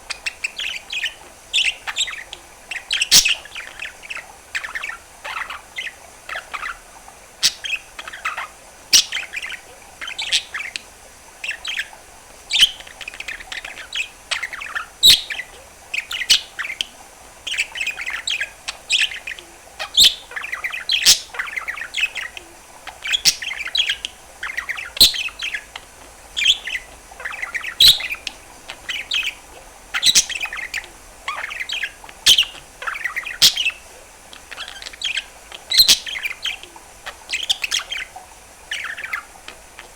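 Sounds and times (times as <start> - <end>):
budgerigar warbling: 17.5 - 33.8.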